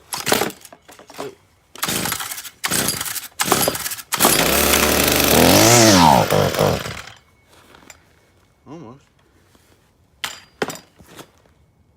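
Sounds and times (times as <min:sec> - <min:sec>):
starter cord pulls: 0:03.4 - 0:07.1
string trimmer engine running: 0:04.2 - 0:07.1.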